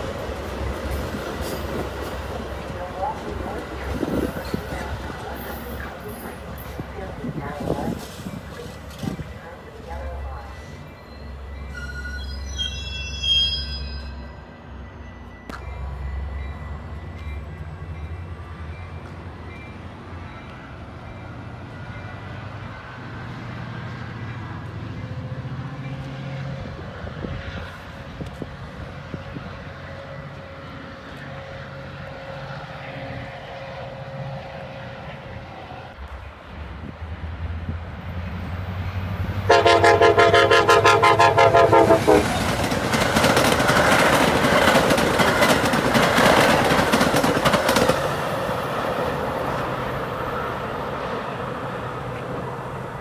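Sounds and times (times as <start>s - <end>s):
train wheels rumbling on rail: 0.0s - 12.6s, 15.2s - 53.0s
train approaching: 0.0s - 53.0s
high wheel squeal: 10.6s - 15.3s.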